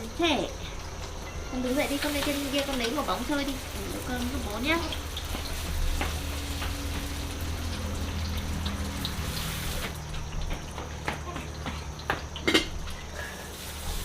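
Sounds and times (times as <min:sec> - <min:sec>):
rushing hiss of water or sizzling: 0:01.6 - 0:10.0, 0:13.0 - 0:14.0.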